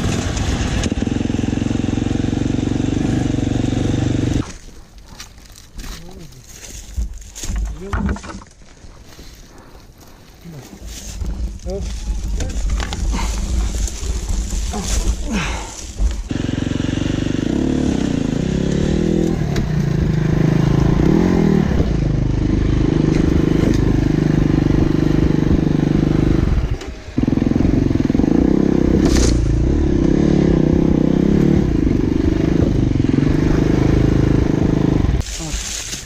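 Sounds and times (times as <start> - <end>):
dirt bike engine revving: 0.0 - 4.4, 12.1 - 35.2.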